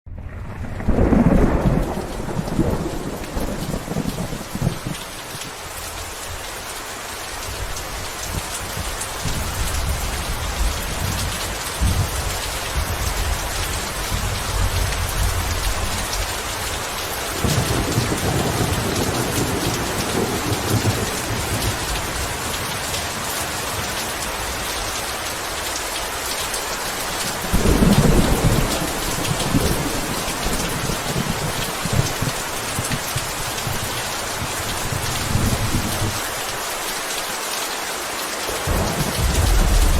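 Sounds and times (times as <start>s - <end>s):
rolling thunder: 0.1s - 5.5s, 17.4s - 24.8s, 27.4s - 36.3s, 38.5s - 39.9s
heavy rain: 0.1s - 39.9s.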